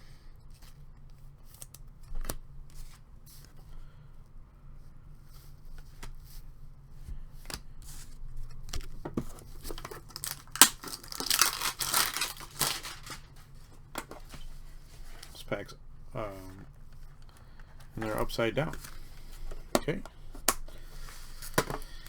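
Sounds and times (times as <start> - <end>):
wrapping tearing and crinkling: 9.6 - 13.5.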